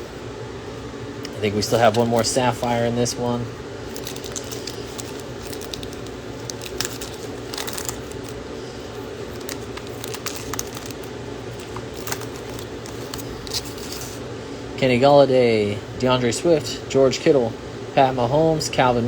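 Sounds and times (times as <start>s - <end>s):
steady background hum: 0.0s - 19.0s
cards and foil wrapper crinkling: 1.4s - 14.2s.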